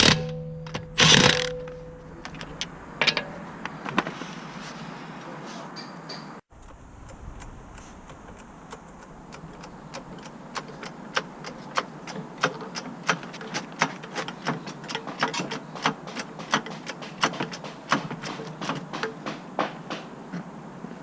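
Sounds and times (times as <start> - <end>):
hand tools clicking and tapping: 8.1 - 20.5.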